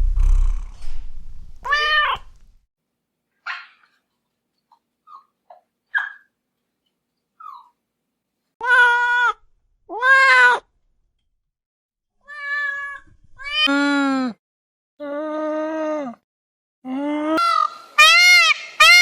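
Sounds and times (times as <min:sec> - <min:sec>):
cat meowing: 0:01.6 - 0:02.3, 0:08.6 - 0:10.6, 0:12.3 - 0:13.7.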